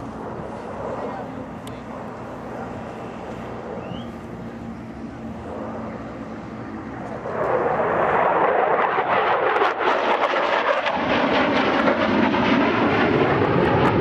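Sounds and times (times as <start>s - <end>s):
fighter jet engine: 0.0s - 14.0s.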